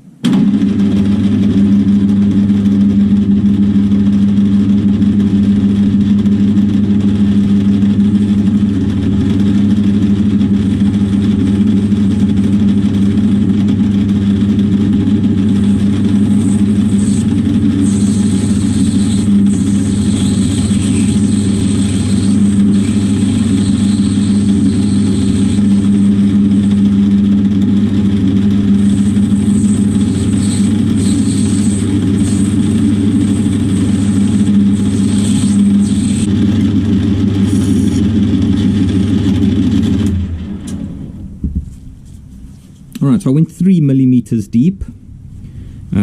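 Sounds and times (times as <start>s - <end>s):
lathe winding down: 0.2s - 41.2s
metal lathe humming and whining: 1.1s - 40.2s.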